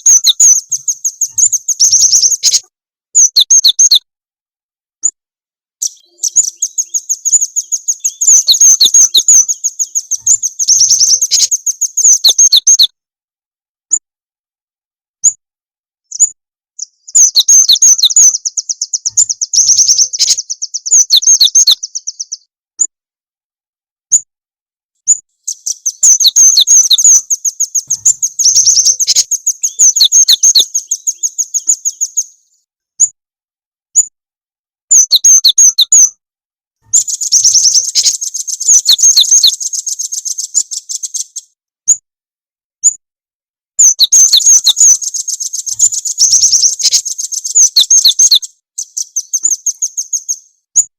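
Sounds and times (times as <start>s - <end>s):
high-pitched bird chirping trills: 0.0s - 4.1s, 5.8s - 13.0s, 16.1s - 22.5s, 25.0s - 33.2s, 34.9s - 36.2s, 36.8s - 42.0s, 43.8s - 50.9s
sharp bird chirps: 0.0s - 4.1s, 5.8s - 13.0s, 16.1s - 22.9s, 25.0s - 33.2s, 33.9s - 34.2s, 34.9s - 36.2s, 36.8s - 42.0s, 42.8s - 43.0s, 43.8s - 50.9s.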